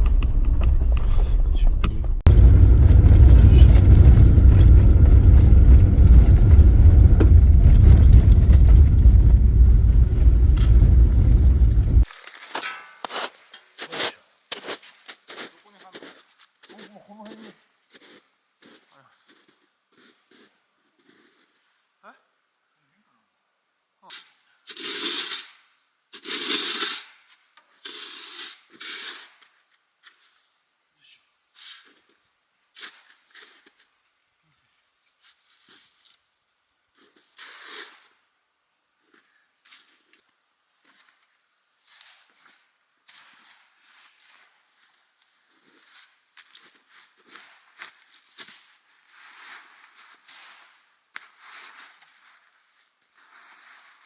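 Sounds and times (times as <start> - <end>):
car engine and road noise: 0.0 - 12.1
rough scraping strokes: 27.8 - 29.5.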